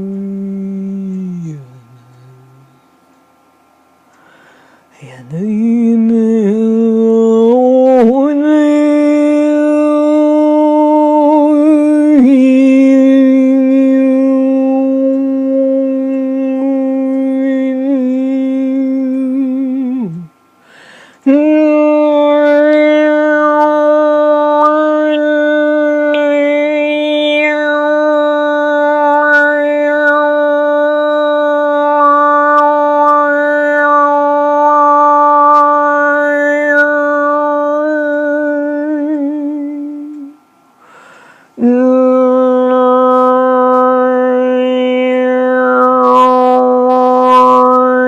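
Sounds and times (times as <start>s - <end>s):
woman singing sustained vocal tones: 0.0s - 2.9s, 5.0s - 20.3s, 21.2s - 40.4s, 41.6s - 48.0s
woman breathing in: 4.1s - 4.9s, 20.6s - 21.2s, 40.8s - 41.6s.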